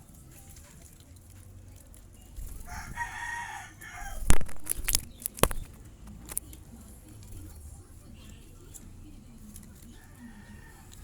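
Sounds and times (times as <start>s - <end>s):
rooster crowing: 2.6s - 4.3s.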